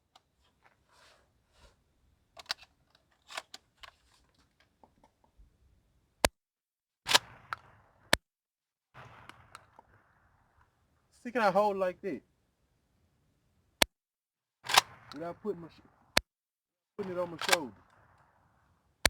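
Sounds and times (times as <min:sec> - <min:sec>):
shotgun action clicks and rattles: 0:02.4 - 0:05.4, 0:07.1 - 0:08.2, 0:14.6 - 0:15.2, 0:17.0 - 0:18.3
shotgun shot with echo: 0:07.1 - 0:08.2, 0:09.0 - 0:10.6, 0:14.6 - 0:16.1, 0:17.0 - 0:18.6.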